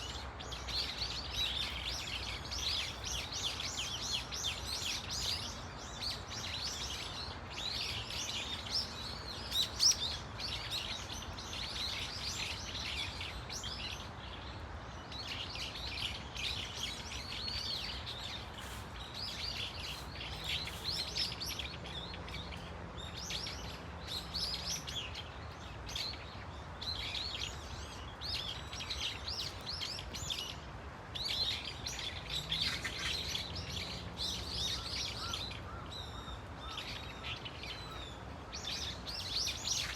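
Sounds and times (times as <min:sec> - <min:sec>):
birds chattering calls: 0:15.0 - 0:39.9.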